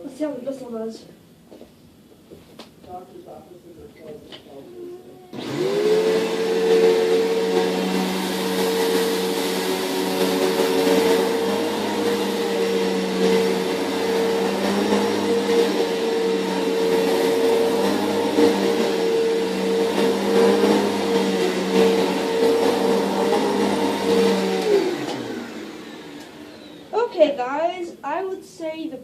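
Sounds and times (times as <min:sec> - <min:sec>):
vacuum cleaner running: 0:04.6 - 0:27.4.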